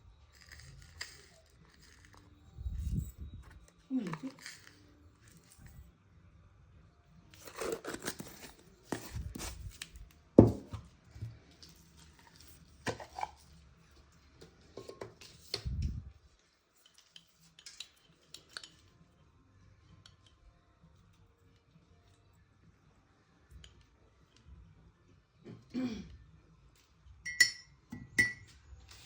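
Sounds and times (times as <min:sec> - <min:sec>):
dishes clattering and scraping: 0:12.3 - 0:13.4, 0:14.7 - 0:15.6.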